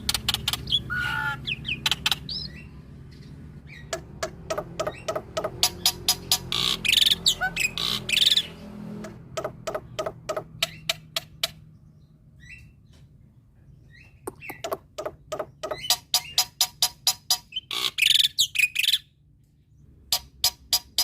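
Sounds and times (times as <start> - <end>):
bird rapid repeated notes: 0.0 - 2.7, 3.7 - 11.6, 14.3 - 19.0
bird harsh calls: 0.0 - 13.0, 13.8 - 19.1.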